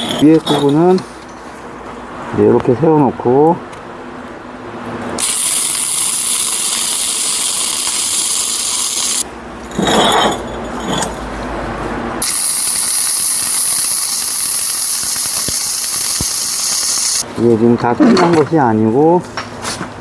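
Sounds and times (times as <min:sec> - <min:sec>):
arc welding crackling hiss: 0:05.2 - 0:09.2, 0:12.2 - 0:17.2.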